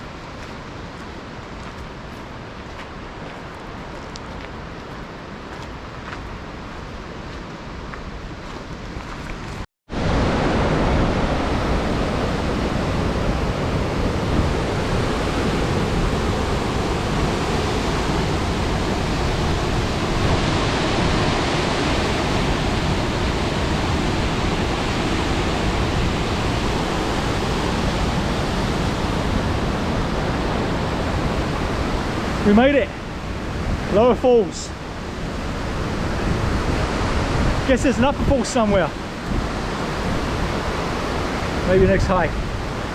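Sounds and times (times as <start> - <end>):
waterfall rushing: 10.0 - 42.9.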